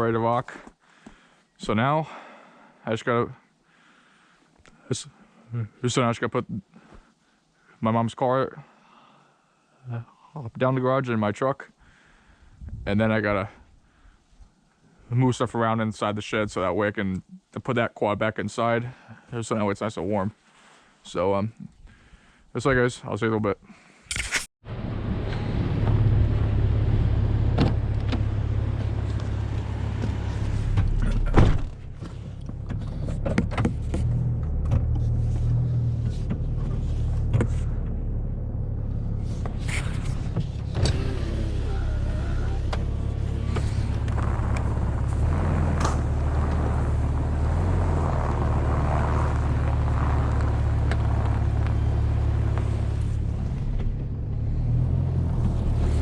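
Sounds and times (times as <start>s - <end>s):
car engine running: 24.7s - 56.0s
loud thump: 27.5s - 28.4s, 29.9s - 32.8s.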